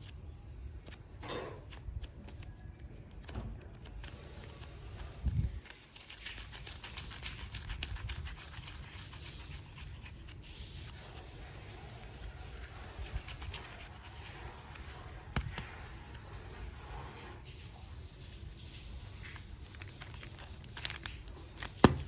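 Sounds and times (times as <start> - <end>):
plastic packaging crackles and clicks: 0.0 - 8.0, 19.2 - 22.0.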